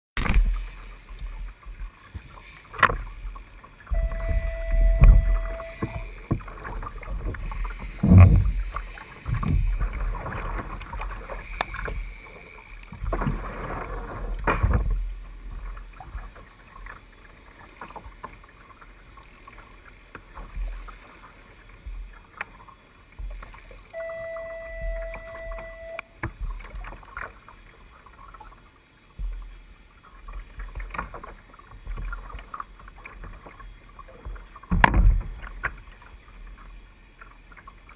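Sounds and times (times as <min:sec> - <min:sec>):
wind rumble on microphone: 0:00.2 - 0:12.1
water splashing around kayak: 0:00.2 - 0:37.9
steady beep tone: 0:03.9 - 0:06.1, 0:24.0 - 0:26.1.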